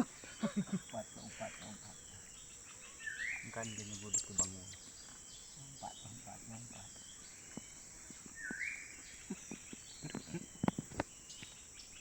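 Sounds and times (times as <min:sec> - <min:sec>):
insect drone: 0:00.0 - 0:12.0
bird chirps and whistles: 0:08.4 - 0:09.0.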